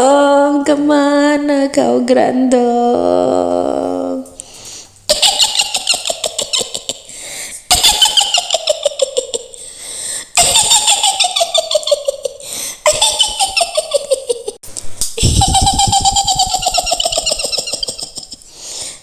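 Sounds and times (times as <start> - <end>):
woman cackling: 5.1 - 7.1, 10.4 - 14.6, 15.2 - 18.5.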